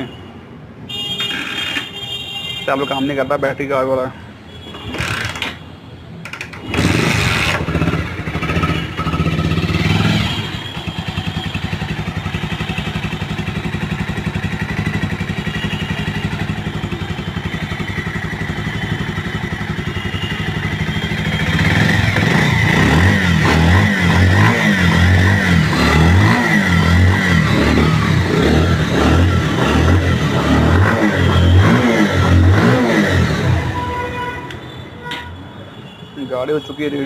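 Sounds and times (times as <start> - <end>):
motorcycle engine starting and idling: 6.2 - 33.8.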